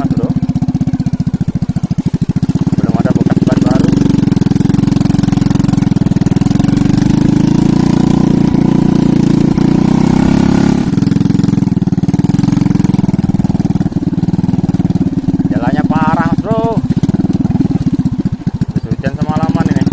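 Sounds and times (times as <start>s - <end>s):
small engine running: 0.0s - 19.9s.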